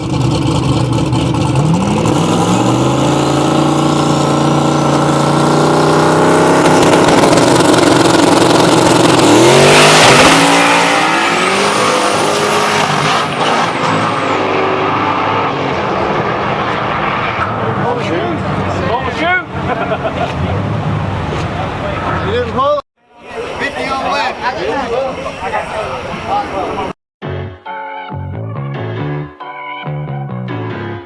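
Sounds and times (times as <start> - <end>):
race car engine revving: 0.0 - 22.7
thin high whine: 23.1 - 26.9.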